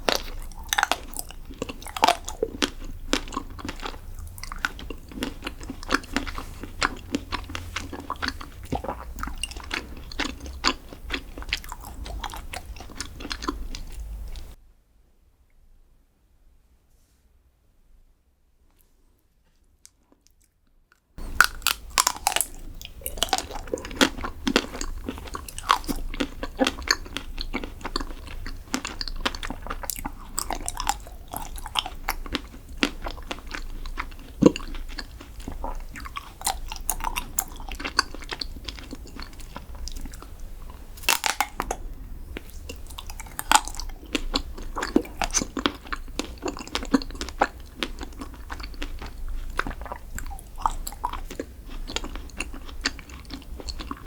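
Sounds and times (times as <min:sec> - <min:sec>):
crunchy chewing close up: 0:00.0 - 0:14.6, 0:21.2 - 0:54.0.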